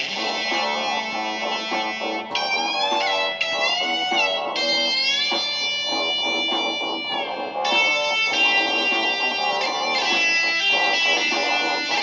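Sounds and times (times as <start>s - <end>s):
electric guitar lead note bending: 0.0s - 12.0s
plucked guitar pattern: 0.0s - 12.0s.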